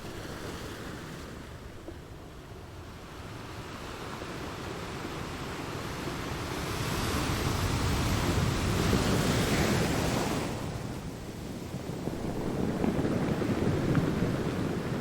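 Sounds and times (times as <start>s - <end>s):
ocean waves washing: 0.0s - 15.0s.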